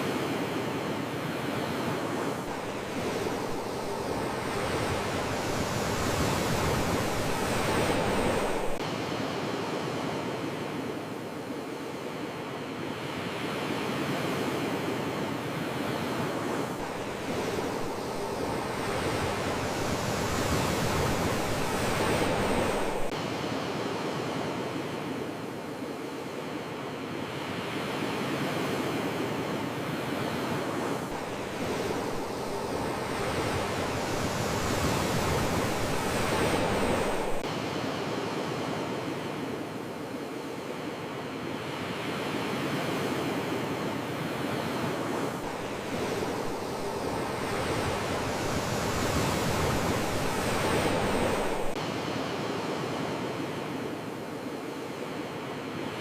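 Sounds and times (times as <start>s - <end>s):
sea waves washing onto shore: 0.0s - 56.0s.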